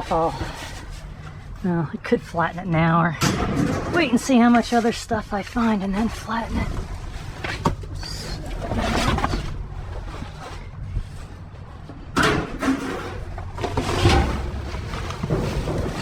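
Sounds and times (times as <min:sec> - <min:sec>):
steady low rumble: 0:00.0 - 0:12.6
rustling and scraping of debris: 0:00.0 - 0:16.0.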